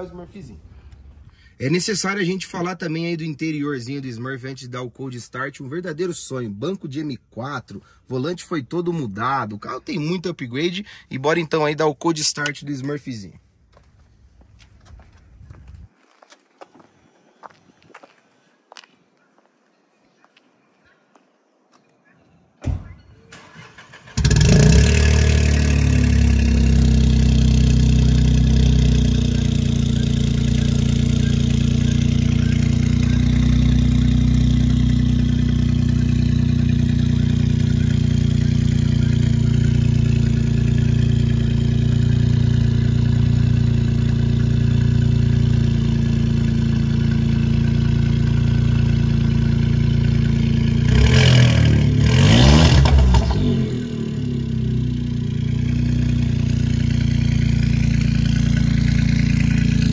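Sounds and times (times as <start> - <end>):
engine cranking: 23.3 - 26.8
car engine idling loud: 24.2 - 59.9.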